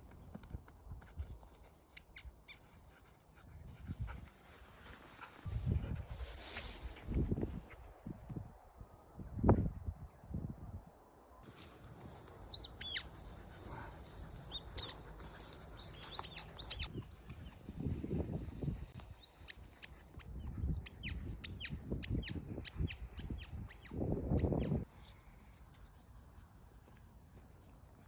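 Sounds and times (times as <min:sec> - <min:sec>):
small birds chirping: 0:12.4 - 0:24.8.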